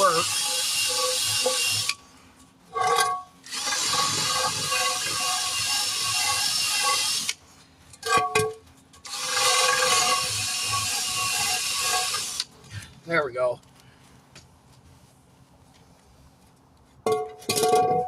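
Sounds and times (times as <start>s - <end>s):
cordless power tool running: 3.5s - 7.3s, 9.1s - 12.5s.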